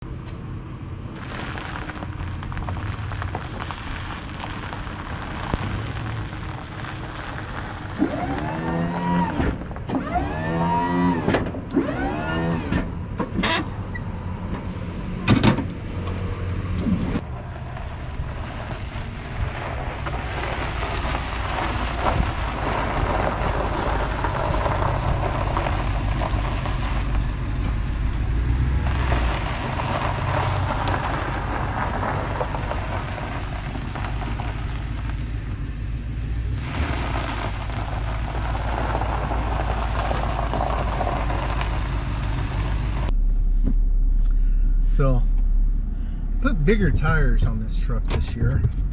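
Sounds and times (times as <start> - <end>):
truck engine running: 0.0 - 48.9
sharp clunk: 15.2 - 15.7.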